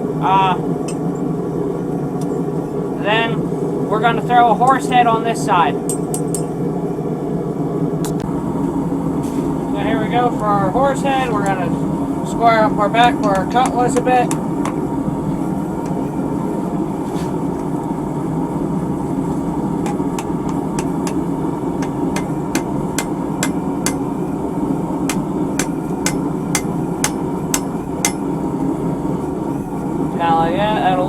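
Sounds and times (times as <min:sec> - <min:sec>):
steady background drone: 0:00.0 - 0:31.0
hammer ringing on anvil: 0:05.8 - 0:06.6, 0:13.0 - 0:14.8, 0:19.8 - 0:24.3, 0:25.0 - 0:28.7.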